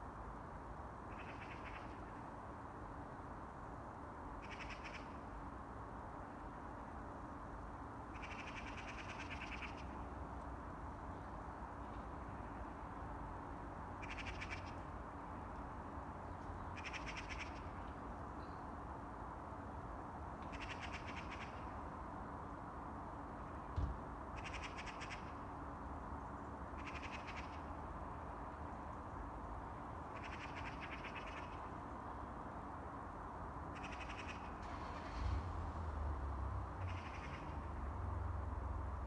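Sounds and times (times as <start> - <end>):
thump: 23.8 - 24.0.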